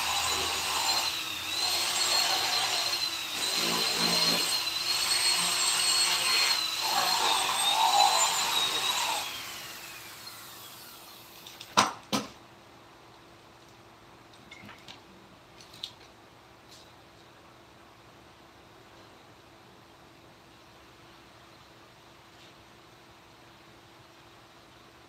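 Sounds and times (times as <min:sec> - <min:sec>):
rotary carving tool whining: 0:00.0 - 0:11.4.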